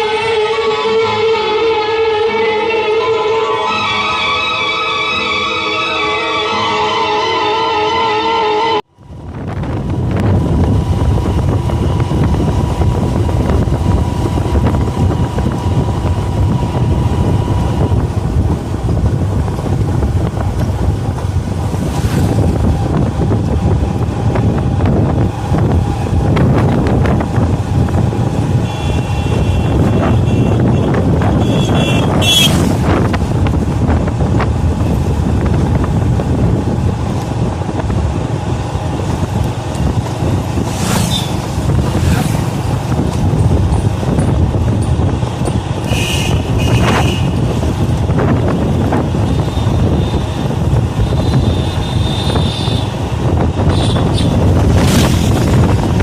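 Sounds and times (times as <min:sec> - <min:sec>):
road traffic: 0:00.0 - 0:56.0
wind on microphone: 0:08.9 - 0:56.0.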